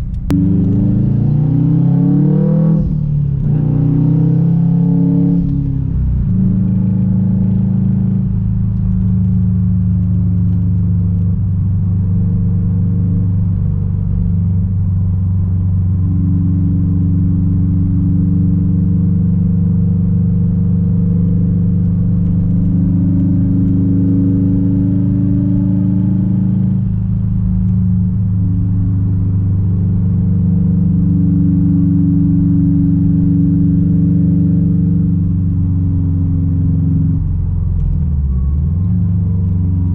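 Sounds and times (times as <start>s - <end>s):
car exhaust drone: 0.0s - 39.9s.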